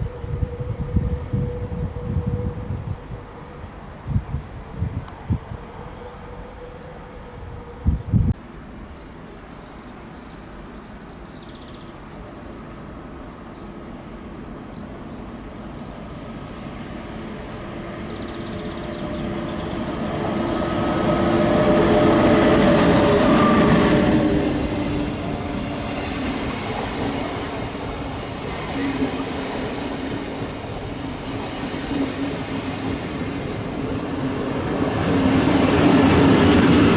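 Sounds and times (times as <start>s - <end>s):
train passing: 13.8s - 36.9s
train steady tones: 15.3s - 36.9s.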